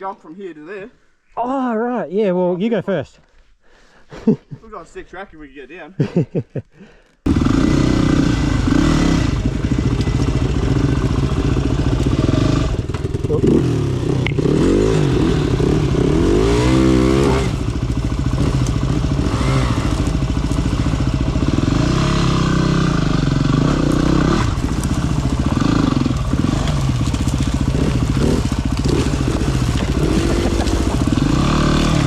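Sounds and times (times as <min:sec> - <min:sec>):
dirt bike engine revving: 0:07.3 - 0:32.0.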